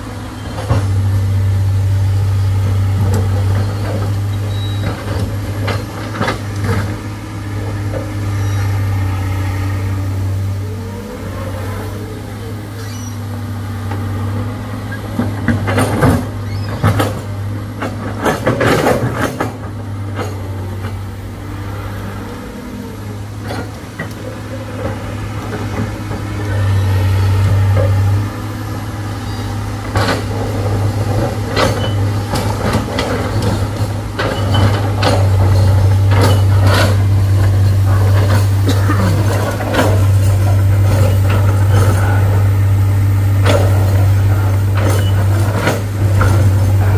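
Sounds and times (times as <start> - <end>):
heavy vehicle engine running: 0.0 - 46.9
clanks and knocks: 15.1 - 21.0, 29.8 - 42.5.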